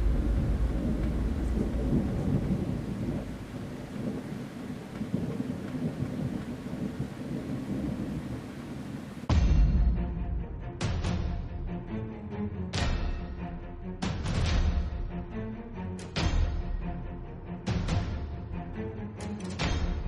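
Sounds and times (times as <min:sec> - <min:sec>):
steady rain: 0:00.0 - 0:10.1
thunder rumbling: 0:00.0 - 0:10.2
music: 0:09.3 - 0:20.0.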